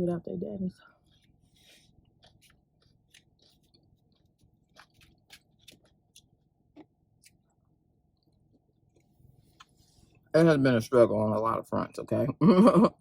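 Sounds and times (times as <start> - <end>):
person chewing food: 0.9 - 10.3.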